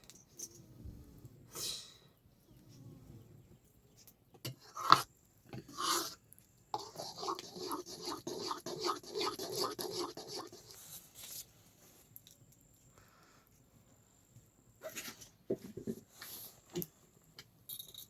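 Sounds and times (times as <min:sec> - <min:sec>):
scraping strokes: 0:06.8 - 0:11.4.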